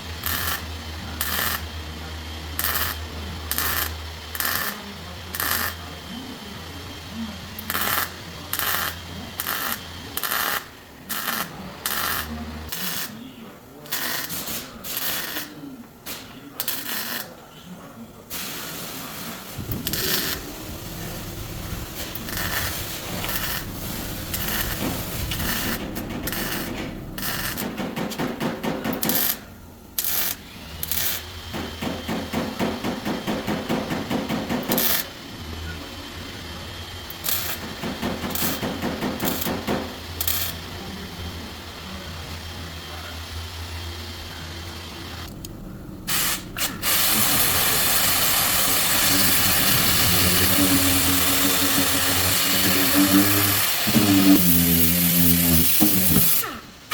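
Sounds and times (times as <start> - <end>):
power tool hum: 19.6 - 29.4, 43.4 - 56.6
power tool stuttering rattle: 19.6 - 35.1, 46.2 - 56.5
loud even power tool noise: 19.6 - 56.9.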